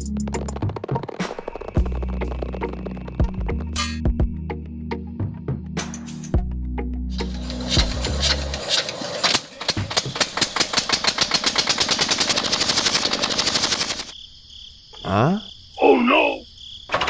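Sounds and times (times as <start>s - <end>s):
model engine rattling: 7.2s - 14.1s.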